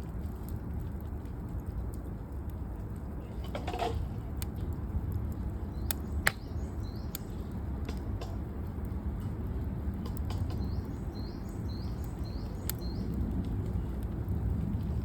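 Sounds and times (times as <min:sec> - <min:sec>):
campfire crackling and popping: 0:00.0 - 0:15.0
bird chirping: 0:10.4 - 0:13.2.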